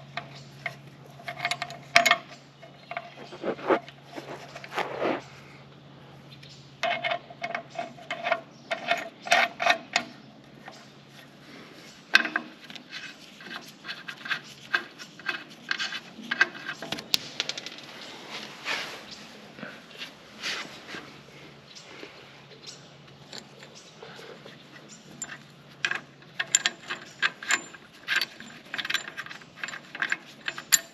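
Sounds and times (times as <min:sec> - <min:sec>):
low steady hum: 0:00.0 - 0:30.9
small metal hardware clinking: 0:00.2 - 0:03.4, 0:12.1 - 0:17.8, 0:23.2 - 0:23.9, 0:24.9 - 0:30.9.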